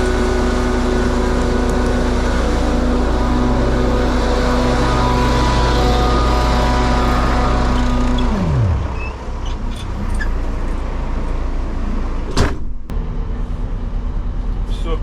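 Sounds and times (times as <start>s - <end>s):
truck engine and vacuum pump: 0.0s - 15.0s.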